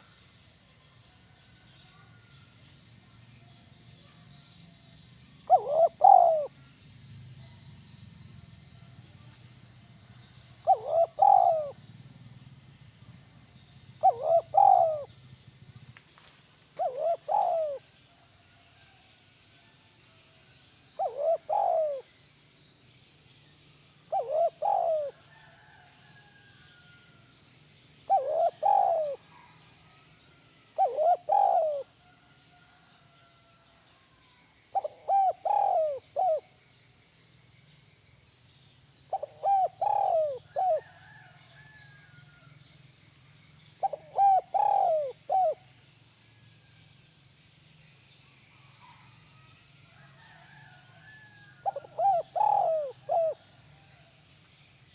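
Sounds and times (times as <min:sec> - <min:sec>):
faint steady hum: 0:00.0 - 0:54.9
dove cooing: 0:05.4 - 0:06.5, 0:10.6 - 0:11.8, 0:14.0 - 0:15.2, 0:16.8 - 0:17.8, 0:21.0 - 0:22.1, 0:24.1 - 0:25.4, 0:28.1 - 0:29.6, 0:30.8 - 0:32.0, 0:34.7 - 0:36.5, 0:39.1 - 0:41.2, 0:43.8 - 0:45.6, 0:51.6 - 0:53.5.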